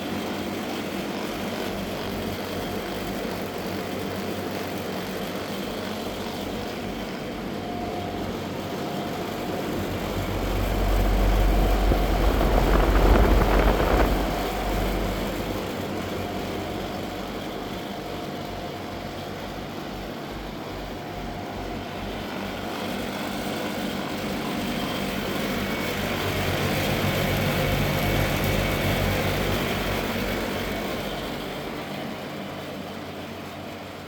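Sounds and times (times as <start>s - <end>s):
outdoor fans whooshing: 0.0s - 34.0s
compressor hum: 6.4s - 22.7s
heavy low rumble: 9.8s - 15.7s.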